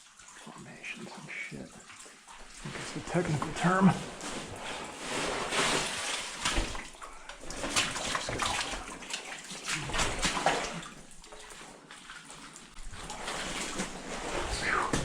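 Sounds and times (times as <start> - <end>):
water sloshing and splashing: 0.0 - 15.0.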